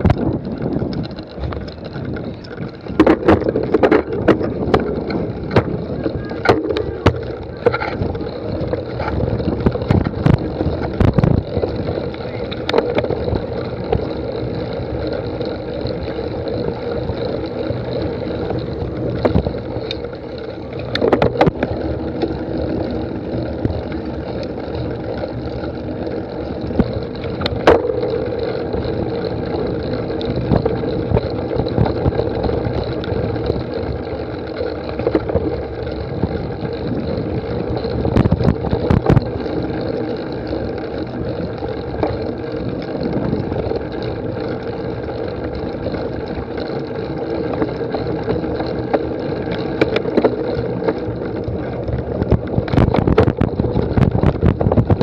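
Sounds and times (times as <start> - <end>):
bike knocks and rattles: 0.0 - 55.0
wind and rolling noise: 0.0 - 55.0.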